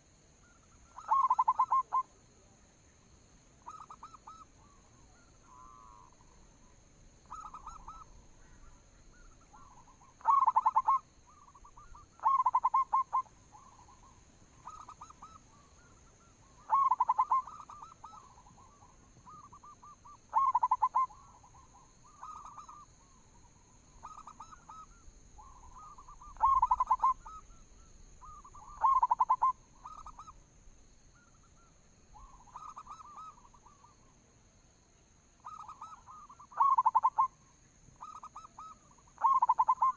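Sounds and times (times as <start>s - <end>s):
doves cooing: 0.9s - 2.0s, 7.2s - 22.8s, 24.0s - 30.3s, 35.5s - 37.3s, 38.0s - 39.9s.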